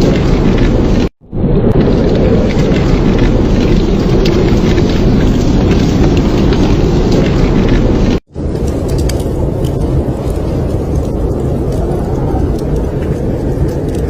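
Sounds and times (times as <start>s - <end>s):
snowstorm wind rushing: 0.0s - 14.0s.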